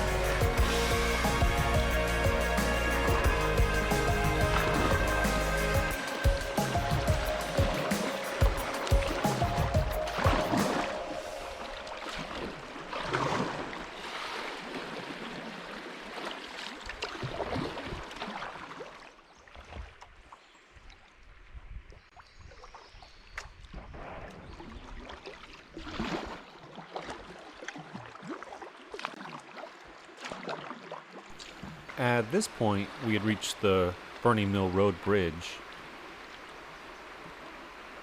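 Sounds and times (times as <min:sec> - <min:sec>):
river water rushing and splashing: 0:00.0 - 0:21.3, 0:24.4 - 0:38.0
paddle swishes: 0:04.1 - 0:18.8.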